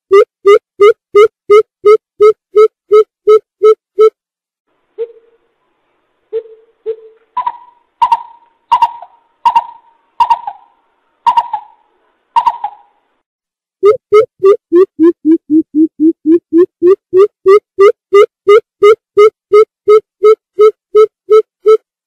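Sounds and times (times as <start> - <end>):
bird hooting: 5.0 - 5.5, 6.4 - 11.8, 12.4 - 12.9.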